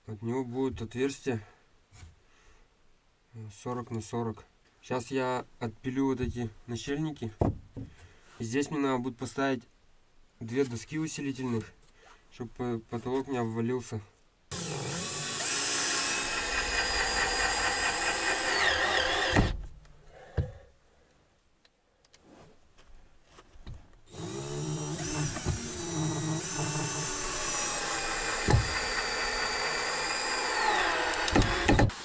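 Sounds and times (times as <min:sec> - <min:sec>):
knocks: 0:07.4 - 0:08.0, 0:28.5 - 0:28.8
electric saw cutting wood: 0:14.5 - 0:19.6, 0:24.1 - 0:32.0.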